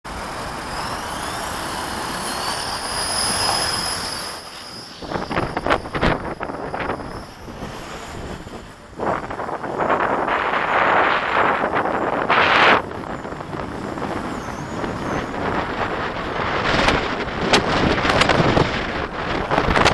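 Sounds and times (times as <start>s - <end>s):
rc helicopter whine: 0.1s - 19.9s
wind buffeting microphone: 5.0s - 19.9s.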